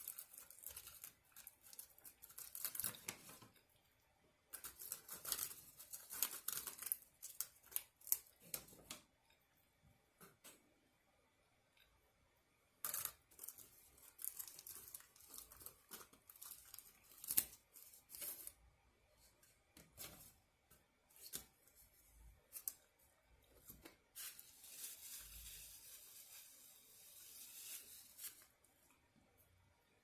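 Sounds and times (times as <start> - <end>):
packaging crackling and tearing: 4.6 - 8.4.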